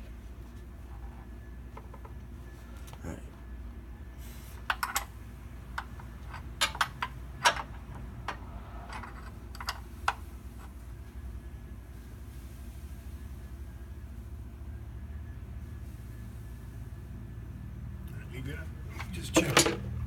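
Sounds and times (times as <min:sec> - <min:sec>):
hand tools clicking and knocking: 0:05.8 - 0:10.2, 0:19.0 - 0:19.9.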